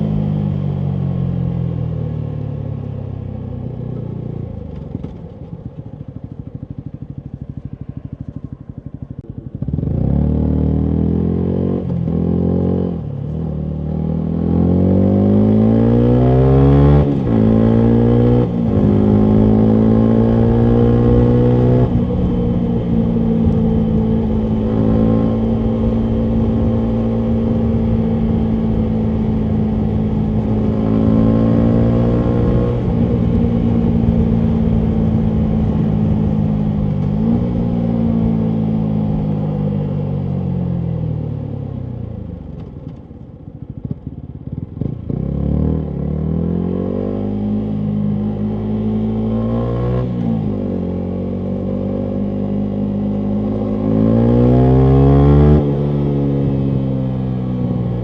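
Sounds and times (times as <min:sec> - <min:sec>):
motorcycle engine idling and revving: 0:00.0 - 0:58.0.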